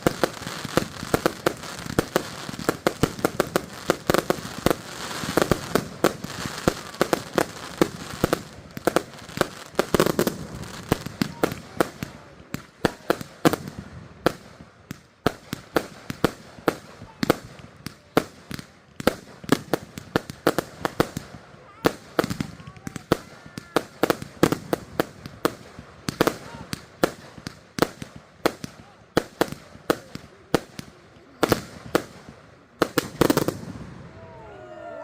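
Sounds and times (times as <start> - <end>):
fireworks bangs and crackles: 0.0 - 34.7.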